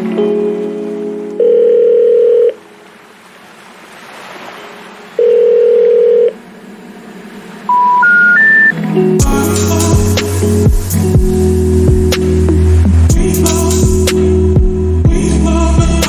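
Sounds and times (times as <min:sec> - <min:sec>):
telephone ringback tone: 0:01.4 - 0:02.6, 0:05.2 - 0:06.4, 0:07.7 - 0:08.8
rising three-note information tone: 0:07.7 - 0:12.9
faint hiss: 0:09.2 - 0:14.4.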